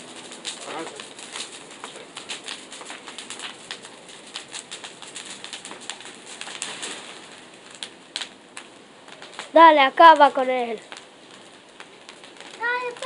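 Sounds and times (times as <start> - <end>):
bonfire crackling and popping: 0.0 - 13.0
hiss of flames: 0.0 - 13.0.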